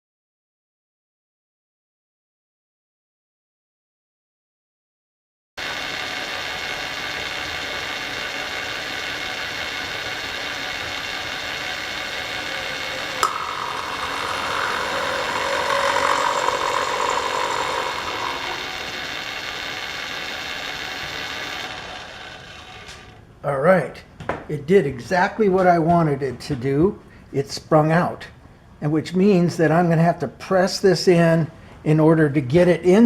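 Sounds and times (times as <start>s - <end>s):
metal-working machine cutting: 5.6s - 23.2s.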